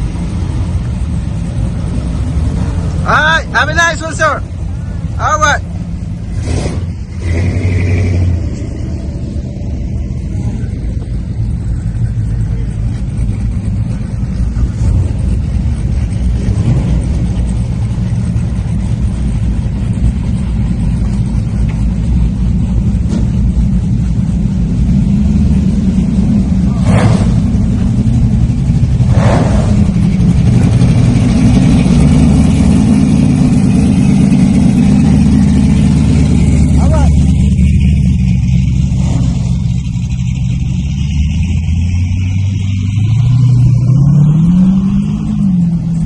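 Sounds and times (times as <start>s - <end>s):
car engine rumbling: 0.0s - 46.0s.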